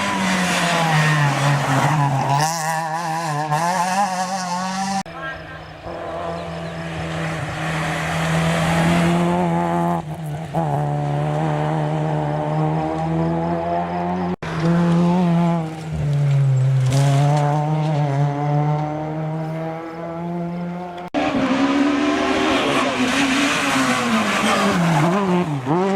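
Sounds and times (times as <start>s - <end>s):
rally car engine revving: 0.0s - 25.9s.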